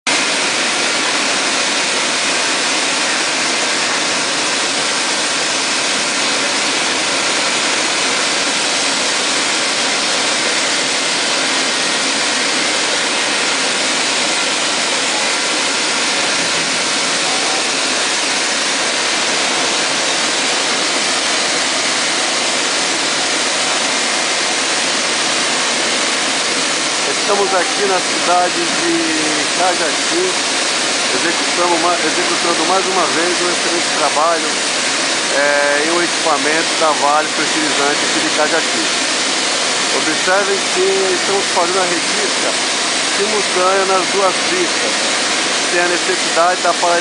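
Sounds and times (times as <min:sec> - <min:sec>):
grinding hiss: 0:00.2 - 0:47.0.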